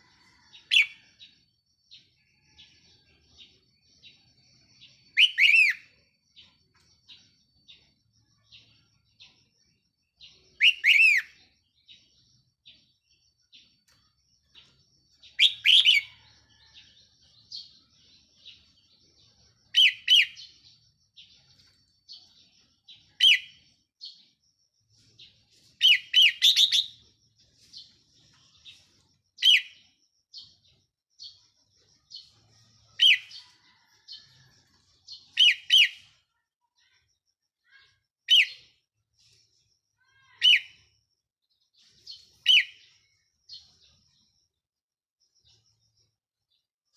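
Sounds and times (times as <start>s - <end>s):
faint bird chirps: 0.0s - 46.9s
bird whistled song phrases: 5.2s - 5.8s, 10.6s - 11.3s.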